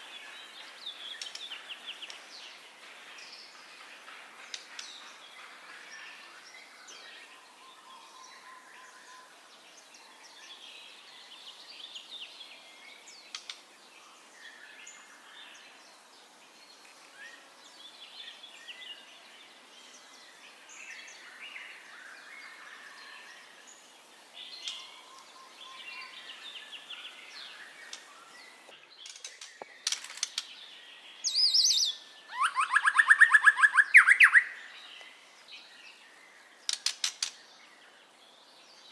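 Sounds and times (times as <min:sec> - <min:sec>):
bird singing whistles and chirps: 0:31.1 - 0:35.0.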